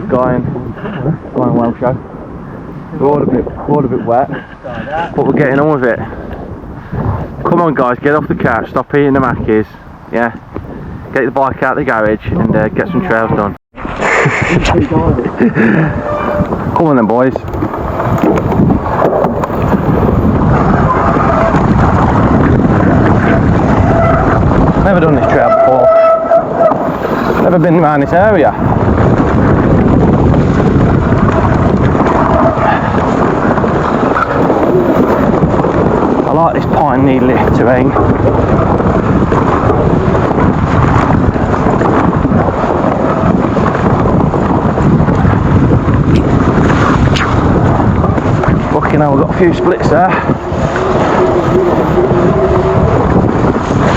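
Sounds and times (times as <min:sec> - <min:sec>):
wind buffeting microphone: 0:00.0 - 0:53.9
bike rattling over trail: 0:13.8 - 0:53.9.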